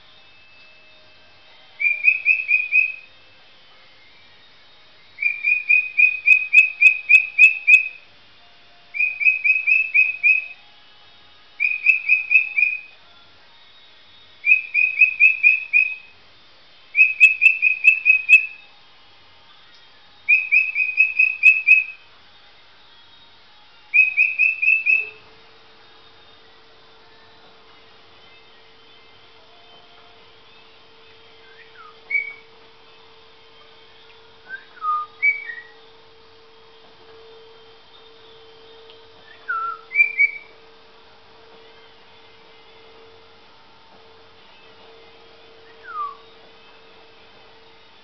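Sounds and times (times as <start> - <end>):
parrot whistling: 1.8 - 3.1, 5.2 - 8.0, 8.9 - 10.6, 11.6 - 12.9, 14.4 - 16.1, 17.0 - 18.7, 20.3 - 22.0, 23.9 - 25.2, 31.4 - 32.5, 34.5 - 35.8, 39.2 - 40.5, 45.6 - 46.3
low hum: 23.4 - 48.0.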